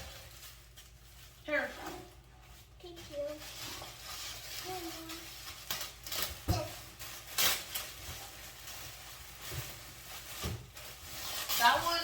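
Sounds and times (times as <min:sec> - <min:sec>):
packaging rustling and tearing: 0:00.0 - 0:12.0
child's voice: 0:02.8 - 0:03.6, 0:04.6 - 0:05.4, 0:06.4 - 0:06.9.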